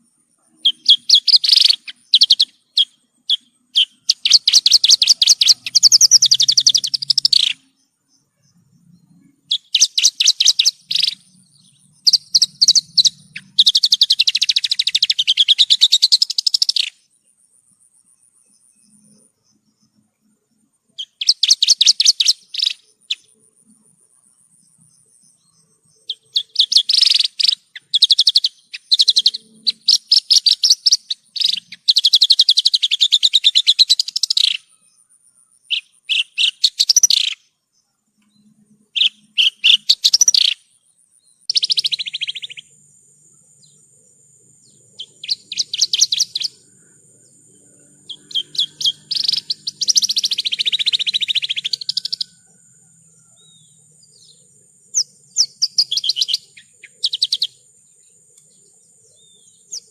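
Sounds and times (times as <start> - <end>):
bird trills and chirps: 0.0 - 17.1, 18.0 - 59.9.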